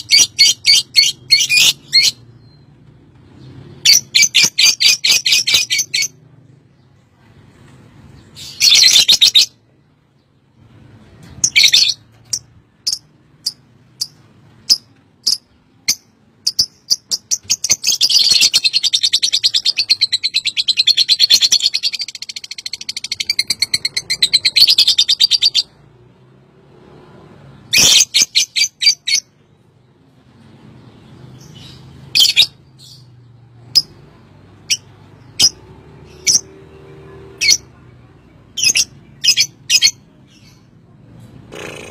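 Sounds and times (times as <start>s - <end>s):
lovebird chirping and trilling: 0.0s - 2.7s, 3.4s - 6.3s, 8.2s - 9.6s, 11.2s - 25.8s, 27.6s - 29.4s, 31.3s - 34.0s, 34.6s - 36.7s, 37.4s - 40.8s.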